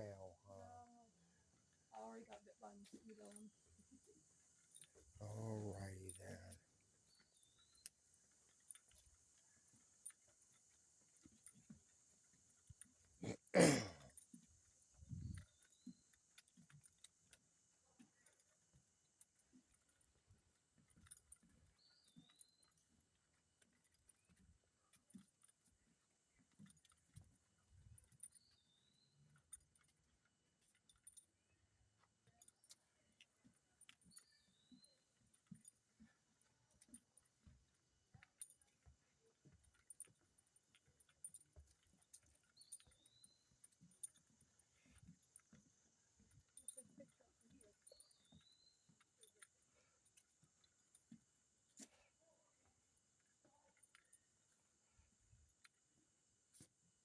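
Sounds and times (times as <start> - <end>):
faint footsteps on a trail: 0.0 - 57.0
high insect ticking: 1.7 - 23.2.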